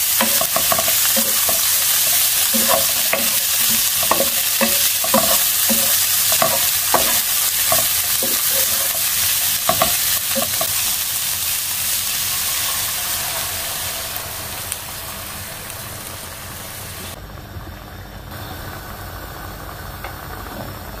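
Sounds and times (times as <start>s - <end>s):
spatula scraping and knocking pan: 0.0s - 11.0s
mushrooms sizzling in oil: 0.0s - 17.2s.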